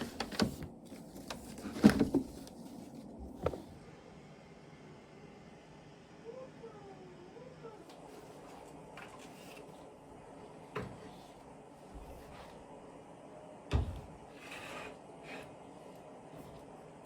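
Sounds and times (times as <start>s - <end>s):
faint handling rustle: 0.0s - 3.6s.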